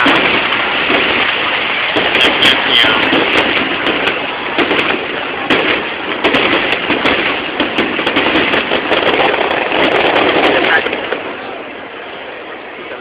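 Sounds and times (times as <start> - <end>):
fireworks bangs and pops: 0.0 - 11.5
fireworks crackling: 0.0 - 12.6.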